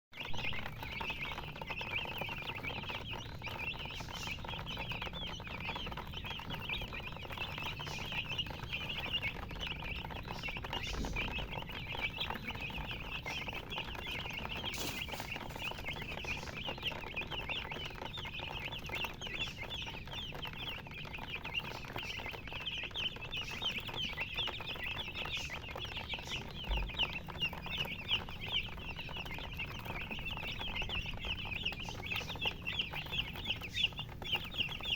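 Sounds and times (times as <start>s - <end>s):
baby chicks peeping: 0.1s - 34.9s.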